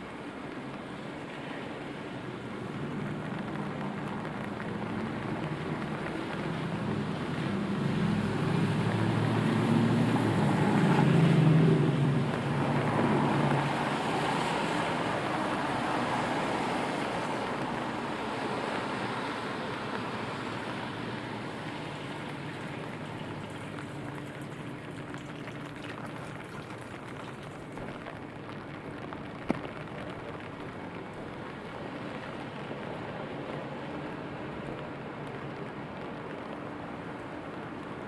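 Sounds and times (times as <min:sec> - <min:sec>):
rain on street: 0:00.0 - 0:38.0
passing vehicle: 0:03.0 - 0:26.6.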